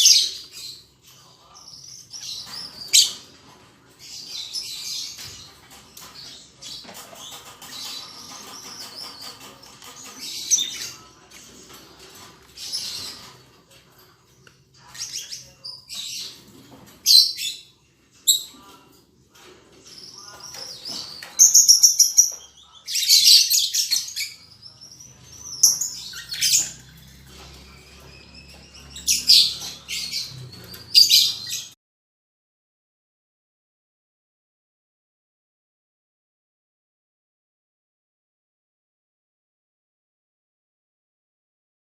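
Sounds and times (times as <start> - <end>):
birds chirping high-pitched: 0.0 - 31.8.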